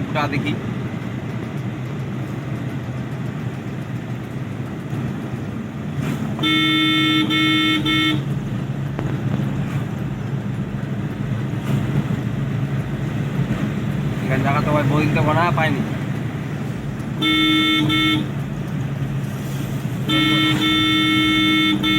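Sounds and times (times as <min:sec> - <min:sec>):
car engine and road rumble: 0:00.0 - 0:21.9
car horn honking: 0:06.3 - 0:08.4, 0:17.1 - 0:18.5, 0:19.9 - 0:21.9.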